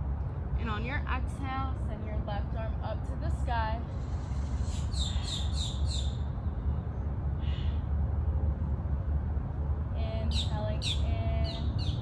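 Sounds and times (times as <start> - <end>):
bird chirping: 4.6 - 6.2.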